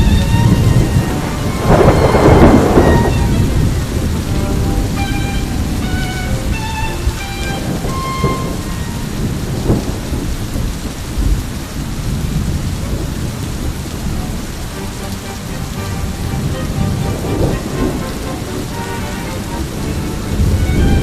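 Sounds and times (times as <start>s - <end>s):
thunder cracks: 0.0s - 6.6s, 7.6s - 14.0s, 14.8s - 21.0s
held string notes: 0.0s - 9.8s, 14.0s - 21.0s
heavy rain: 0.0s - 21.0s
thunder rumbling: 0.0s - 21.0s.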